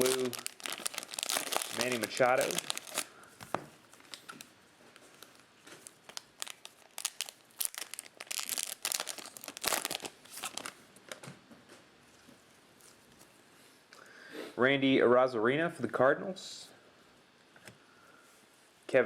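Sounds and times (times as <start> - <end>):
plastic wrapper tearing and crinkling: 0.0 - 3.1, 3.8 - 10.8.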